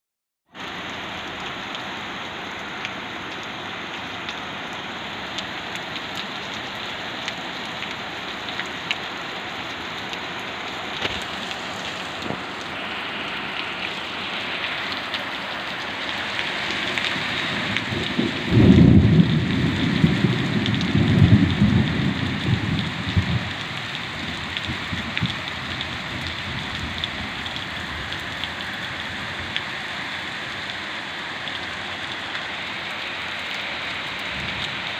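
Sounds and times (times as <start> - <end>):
steady rain: 0.5 - 34.9
raindrop ticks: 0.6 - 29.7, 31.4 - 34.9
thunder clap rolling: 17.2 - 23.6.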